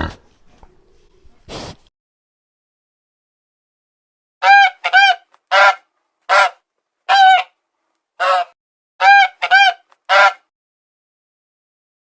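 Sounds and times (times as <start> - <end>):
goose honking: 4.4 - 7.5, 8.2 - 10.4.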